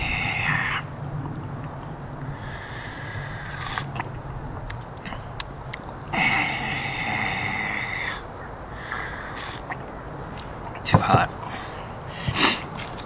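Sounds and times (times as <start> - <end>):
loud hissing: 0.0 - 1.1, 2.2 - 4.1, 6.1 - 9.9, 10.8 - 12.8
person chewing food: 3.4 - 6.2, 8.8 - 10.8
sharp crunchy clicks: 3.5 - 6.1.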